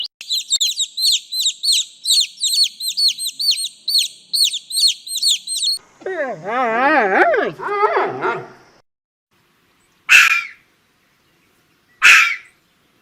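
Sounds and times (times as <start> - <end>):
small bird chirping rapidly: 0.0 - 5.8.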